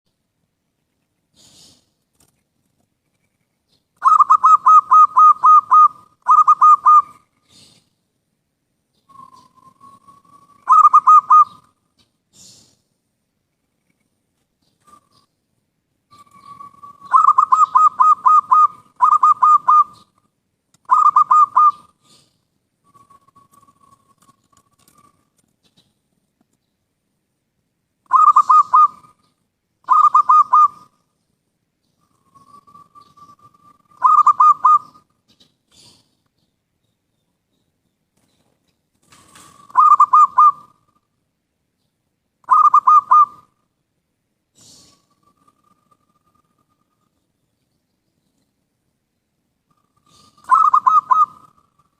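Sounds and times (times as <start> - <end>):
dove cooing: 4.0 - 7.8, 9.1 - 11.8, 16.1 - 20.2, 20.8 - 25.3, 28.1 - 31.0, 32.0 - 36.2, 39.1 - 41.0, 42.4 - 43.6, 49.7 - 51.9.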